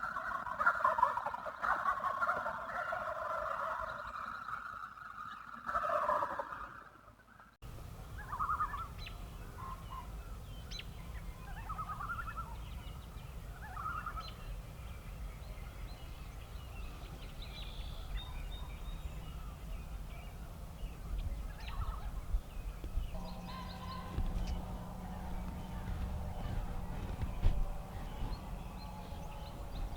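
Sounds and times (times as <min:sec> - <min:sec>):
wild turkey gobbling: 0:00.0 - 0:07.6, 0:08.2 - 0:10.1, 0:11.4 - 0:12.6, 0:13.6 - 0:14.4, 0:21.5 - 0:22.3, 0:23.1 - 0:29.9
low wind rumble: 0:07.7 - 0:29.9.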